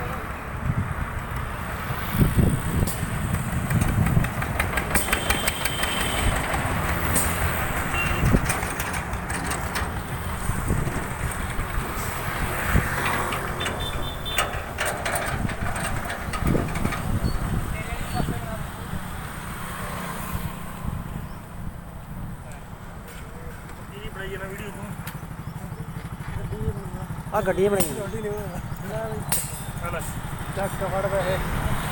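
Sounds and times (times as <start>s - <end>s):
rattling clicks: 2.8s - 17.7s
motorcycle engine running: 24.0s - 31.1s.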